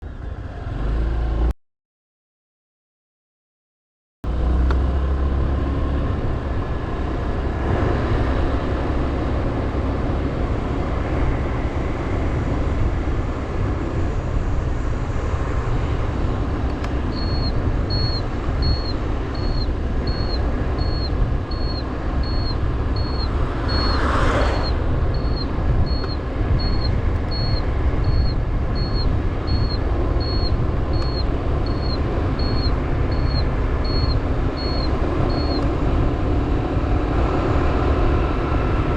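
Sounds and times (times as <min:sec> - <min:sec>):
motorbike engine and road noise: 0:00.0 - 0:01.6, 0:04.2 - 0:38.9
wind rumble: 0:05.3 - 0:38.9
high short beeps: 0:17.1 - 0:35.6.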